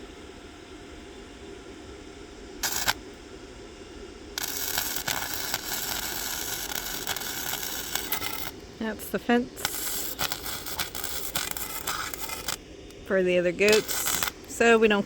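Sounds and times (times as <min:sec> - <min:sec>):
background hum: 0:00.0 - 0:15.0
welding arc crackling: 0:02.6 - 0:03.1, 0:04.4 - 0:15.0.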